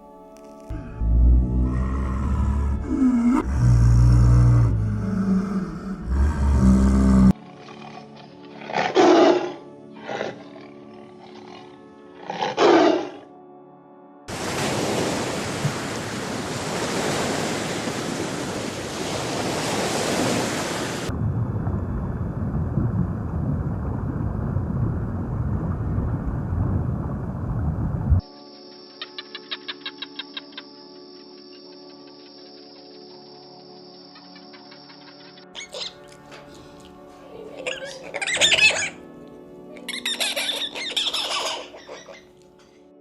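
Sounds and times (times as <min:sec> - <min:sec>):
animal roaring: 0:00.7 - 0:13.3.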